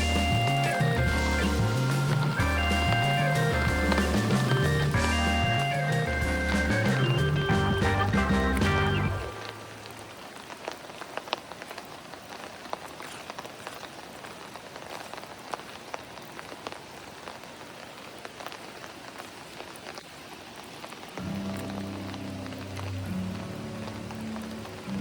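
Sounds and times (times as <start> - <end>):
music: 0.0 - 9.5, 21.2 - 25.0
rain falling: 0.0 - 25.0.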